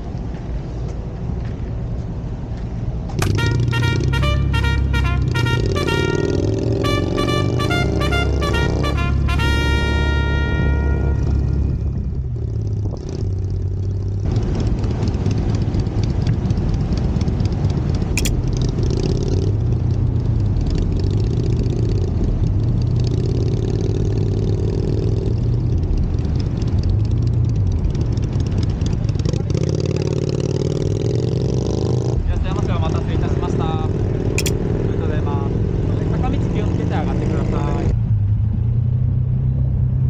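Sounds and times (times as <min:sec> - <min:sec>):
scooter engine humming: 0:03.3 - 0:12.0.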